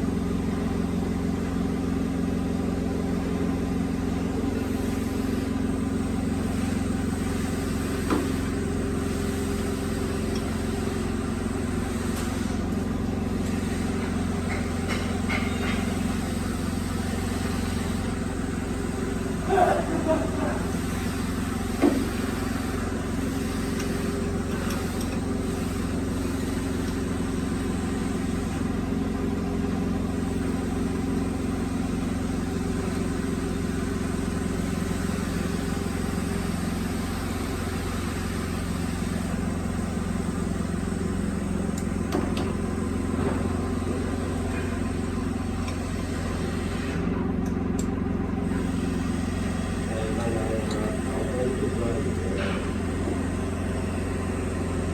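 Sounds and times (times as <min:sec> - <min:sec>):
mortising machine motor drone: 0:36.6 - 0:54.9.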